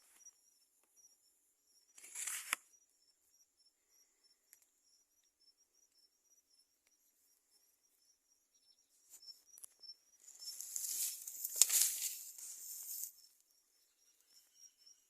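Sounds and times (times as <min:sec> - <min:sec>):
crickets chirping: 0:00.0 - 0:15.0
high rustling hiss: 0:10.5 - 0:13.2.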